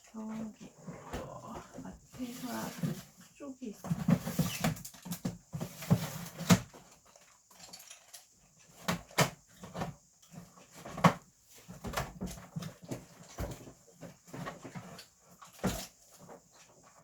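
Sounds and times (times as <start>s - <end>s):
small objects clicking and knocking: 4.0s - 10.4s.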